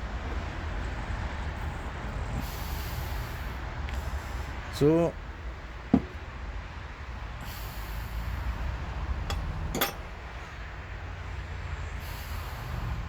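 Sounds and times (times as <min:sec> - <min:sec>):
metallic clinks: 0:09.3 - 0:10.1.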